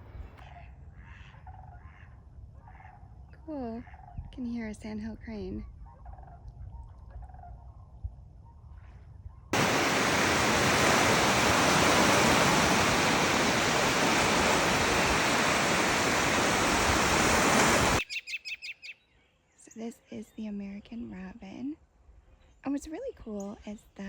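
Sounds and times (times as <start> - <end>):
loud rushing noise: 9.6 - 18.0
bird chirping: 17.7 - 21.0.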